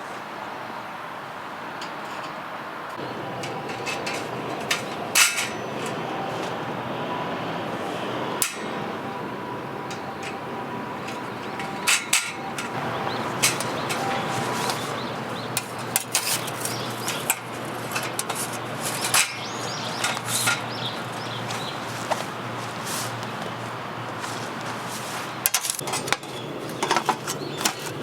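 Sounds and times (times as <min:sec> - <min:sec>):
camping gear knocks and clinks: 0:03.0 - 0:06.6, 0:11.0 - 0:22.3, 0:25.4 - 0:28.0.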